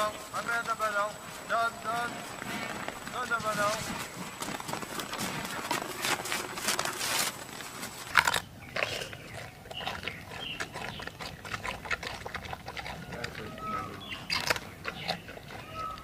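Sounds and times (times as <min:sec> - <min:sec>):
panda chewing bamboo: 0:00.0 - 0:16.0.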